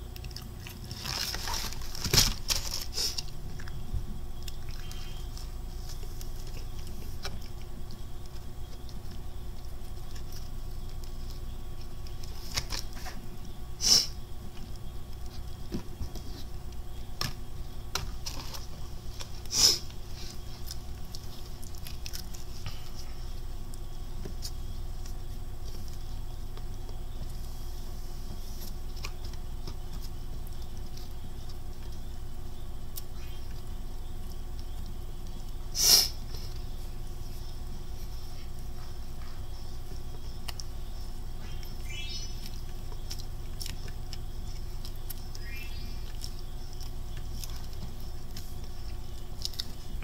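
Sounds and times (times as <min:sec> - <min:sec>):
person chewing crispy chicken: 0:00.0 - 0:03.8, 0:42.4 - 0:50.0
steady low hum: 0:00.0 - 0:50.0
loud crunches: 0:00.1 - 0:32.0.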